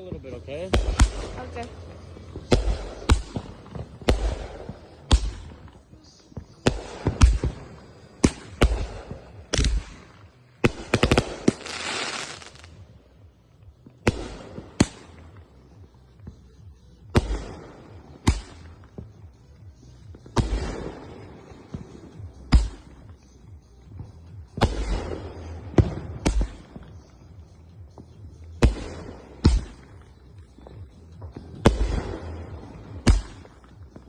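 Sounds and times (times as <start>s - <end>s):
fireworks thump with crackling tail: 0.0s - 12.8s, 20.2s - 23.1s, 24.5s - 27.0s, 28.6s - 30.0s, 31.2s - 34.0s.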